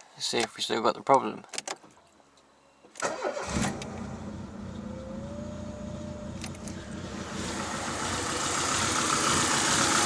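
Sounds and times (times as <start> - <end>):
car engine running: 4.0 - 10.0.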